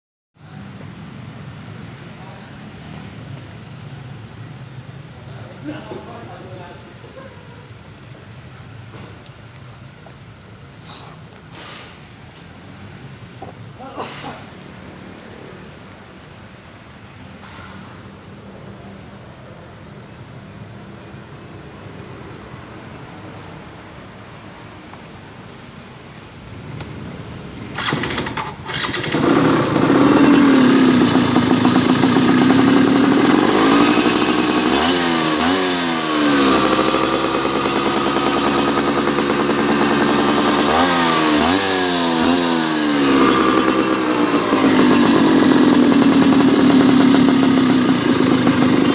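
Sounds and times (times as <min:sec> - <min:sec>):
motorcycle starting and idling: 0:26.5 - 0:48.9
motorcycle engine revving: 0:26.7 - 0:48.9.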